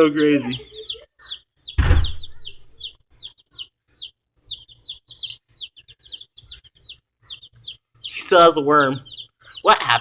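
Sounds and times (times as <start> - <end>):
chicks peeping: 0.0 - 10.0
loud thump: 1.8 - 2.4.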